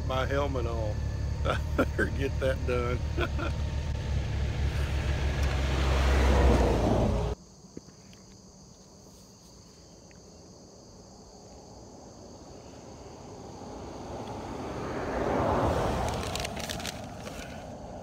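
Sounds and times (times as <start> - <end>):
motorcycle engine and road noise: 0.0 - 7.4, 12.5 - 18.0
insects buzzing: 0.1 - 18.0.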